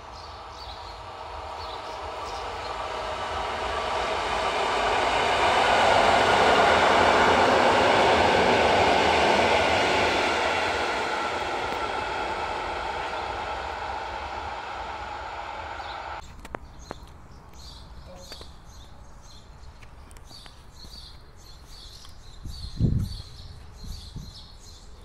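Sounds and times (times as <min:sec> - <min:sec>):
train wheels on rails: 0:00.0 - 0:16.3.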